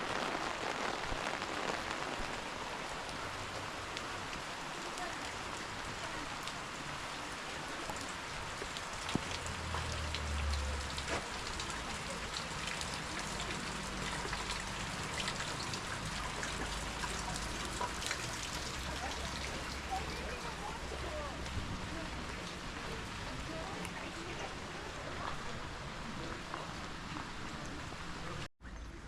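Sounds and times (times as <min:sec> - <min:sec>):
steady rain: 0:00.0 - 0:29.0
raindrops tapping: 0:07.7 - 0:22.6.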